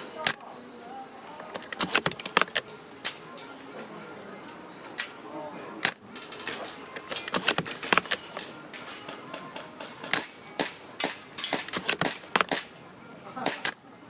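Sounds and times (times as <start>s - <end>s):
faint steady high tone: 0.0s - 1.8s
airsoft rifles firing: 5.8s - 12.8s, 13.4s - 13.8s.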